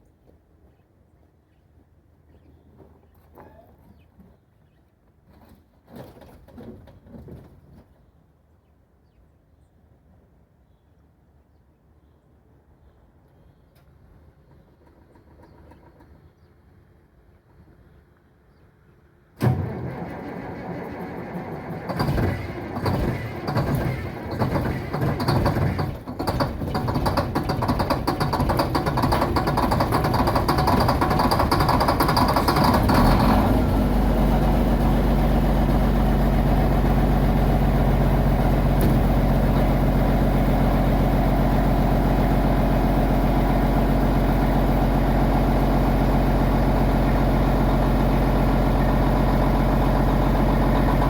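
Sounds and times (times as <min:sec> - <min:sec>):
diesel engine starting and idling: 0:19.4 - 0:51.0.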